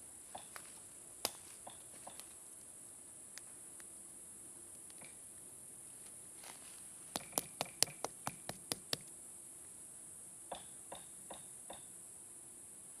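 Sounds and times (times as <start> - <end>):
faint steady hiss: 0.0 - 13.0
sharp knocks: 7.2 - 9.1.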